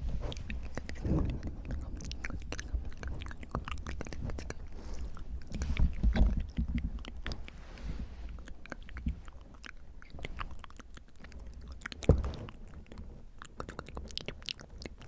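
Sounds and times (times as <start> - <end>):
tongue and lip clicks: 0.0 - 7.6, 8.3 - 15.0
breath rumbling on microphone: 0.0 - 10.6.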